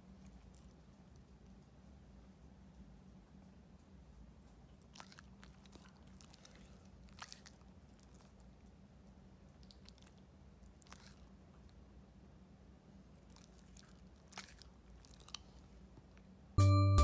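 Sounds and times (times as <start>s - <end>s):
dog chewing: 0.0s - 1.5s, 4.4s - 11.9s, 13.1s - 16.2s.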